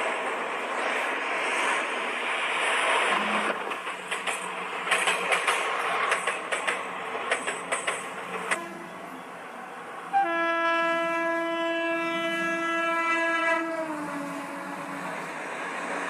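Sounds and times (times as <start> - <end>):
train wheels clattering: 0.0 - 8.9
train rushing past: 0.0 - 16.0.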